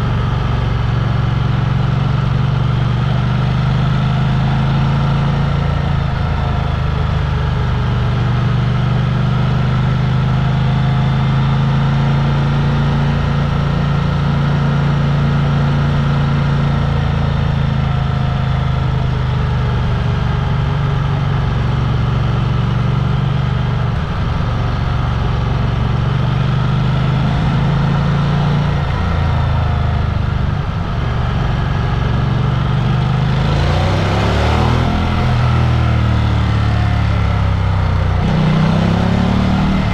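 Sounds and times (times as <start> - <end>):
engine running and revving: 0.0 - 39.9.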